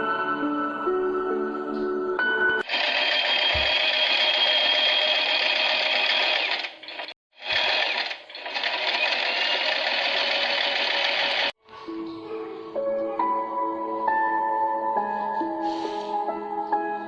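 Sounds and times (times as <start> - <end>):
electric sewing machine stitching: 2.6 - 11.6.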